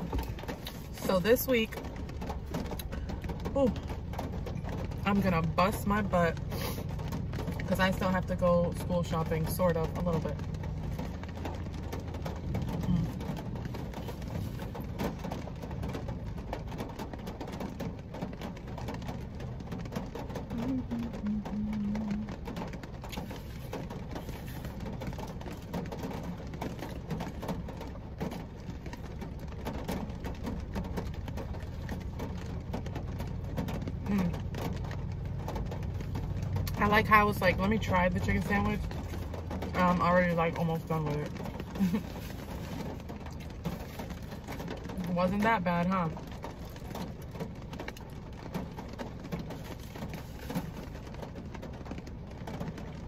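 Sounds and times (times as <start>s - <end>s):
heavy rain on car roof: 0.0s - 53.0s
steady low hum: 20.5s - 22.4s.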